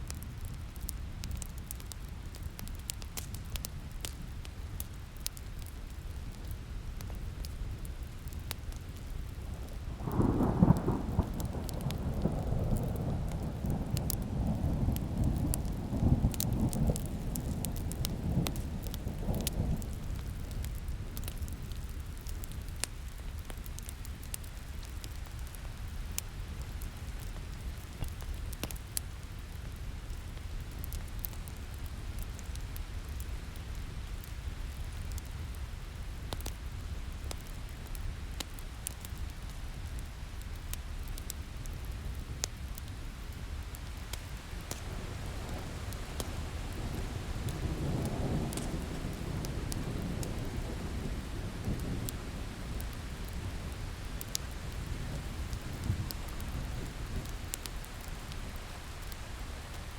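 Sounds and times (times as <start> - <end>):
steady rain: 0.0 - 59.9
wood fire crackling: 0.0 - 59.9
thunder rolling: 9.7 - 20.0.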